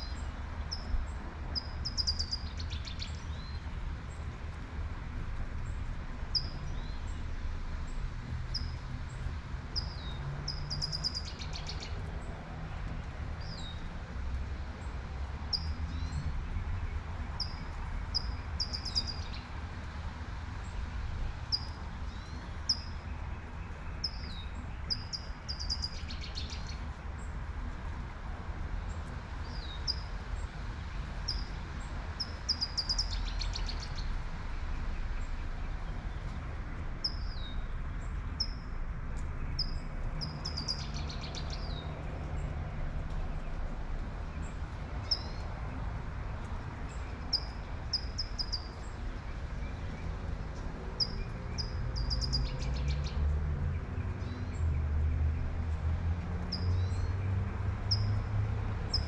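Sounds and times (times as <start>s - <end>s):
songbird chirping: 0.0s - 3.7s, 9.8s - 12.0s, 15.5s - 19.5s, 21.5s - 26.9s, 28.9s - 34.2s, 37.0s - 42.5s, 46.3s - 53.3s
low traffic rumble: 0.0s - 59.0s.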